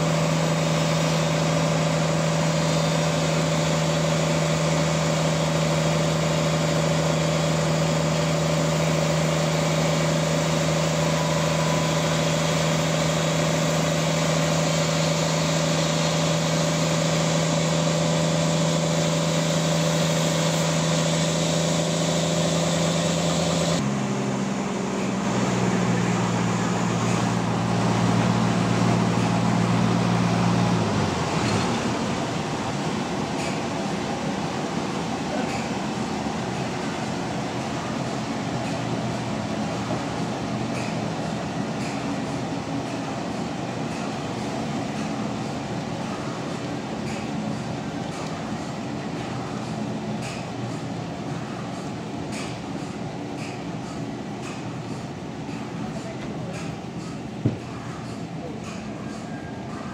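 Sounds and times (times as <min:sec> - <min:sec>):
sawmill engine humming: 0:00.0 - 0:59.9.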